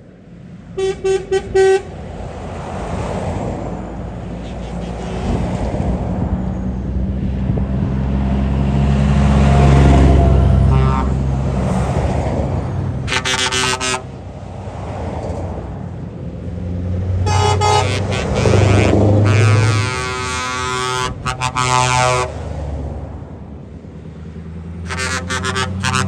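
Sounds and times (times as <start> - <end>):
trucks driving past: 0.0 - 26.0
loud horn blast: 0.8 - 1.9, 4.6 - 5.6, 9.6 - 11.4, 13.0 - 14.2, 17.2 - 22.6, 24.8 - 26.0
truck horn toot: 0.8 - 1.9, 4.4 - 5.5, 10.1 - 11.3, 13.0 - 14.2, 17.2 - 22.5, 24.8 - 26.0.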